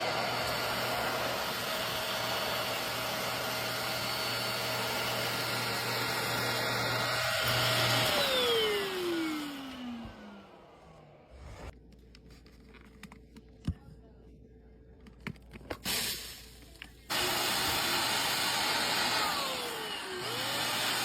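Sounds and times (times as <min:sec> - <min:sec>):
stick vacuum motor whine: 0:00.0 - 0:11.7, 0:17.1 - 0:21.0.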